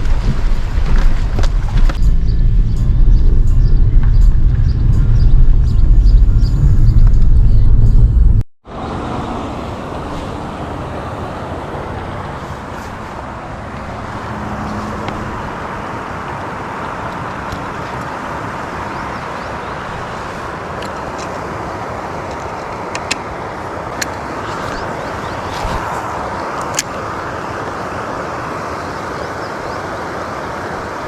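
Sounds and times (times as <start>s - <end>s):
river water rushing: 8.6s - 31.0s.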